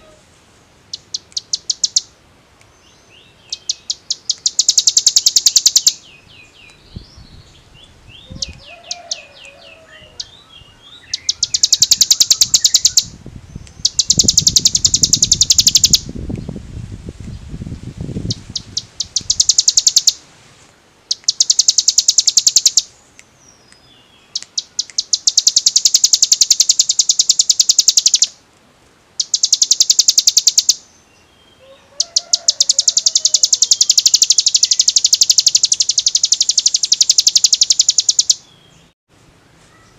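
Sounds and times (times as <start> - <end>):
bird chirps: 0.9 - 2.1, 2.8 - 16.1, 18.3 - 20.2, 21.1 - 28.4, 29.2 - 39.0
bird rattling trill: 0.9 - 2.1, 3.6 - 6.0, 11.1 - 13.1, 13.8 - 16.1, 18.3 - 20.2, 21.1 - 22.9, 24.4 - 28.4, 29.2 - 30.8, 32.0 - 38.4.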